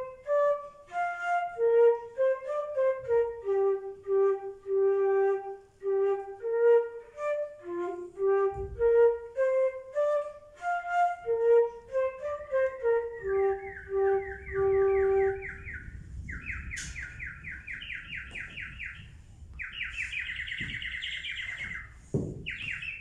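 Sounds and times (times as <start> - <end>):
slow solo flute melody: 0.0 - 23.0.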